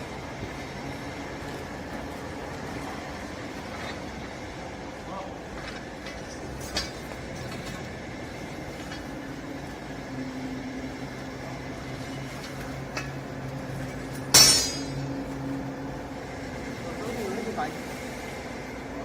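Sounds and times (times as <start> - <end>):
loud metallic clank: 14.3 - 15.2.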